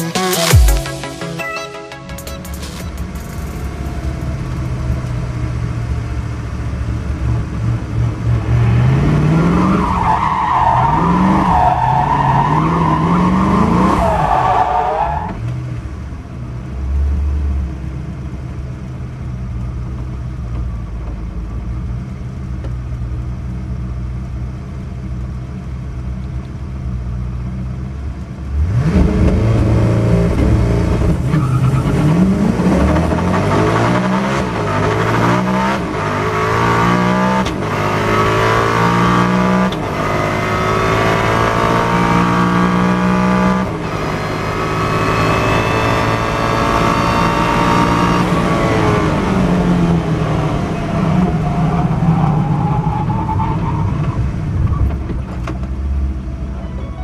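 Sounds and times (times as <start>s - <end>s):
car engine revving: 2.4s - 16.0s, 28.4s - 54.7s
tyre squeal: 31.3s - 32.2s, 56.5s - 57.0s.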